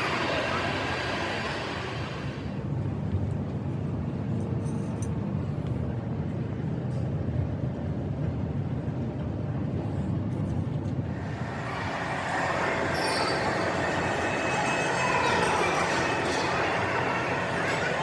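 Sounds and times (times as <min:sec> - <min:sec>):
heavy engine rumbling: 0:00.0 - 0:02.7, 0:10.9 - 0:18.0.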